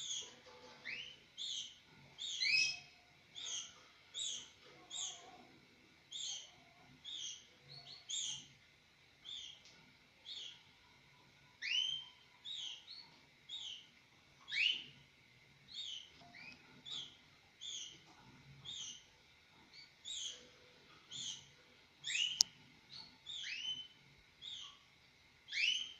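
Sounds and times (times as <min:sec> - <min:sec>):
canaries chirping: 0:00.0 - 0:25.9.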